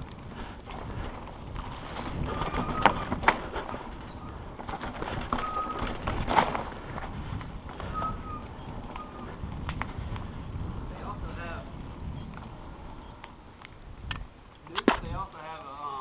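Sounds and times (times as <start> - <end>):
tyres rumbling: 0.0 - 15.3
bike rattling and clunking: 0.0 - 16.0
wind: 0.0 - 16.0
short squeaks: 2.0 - 3.4, 5.0 - 6.7, 7.7 - 9.3.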